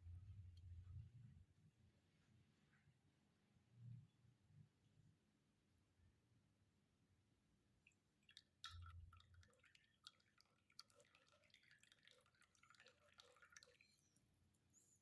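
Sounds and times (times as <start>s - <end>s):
tea pouring in thin stream: 8.2s - 14.3s.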